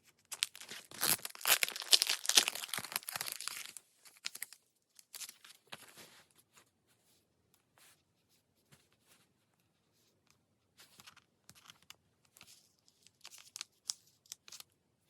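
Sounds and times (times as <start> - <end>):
paper and sticker sheets crinkling: 0.1 - 6.5, 10.8 - 14.7.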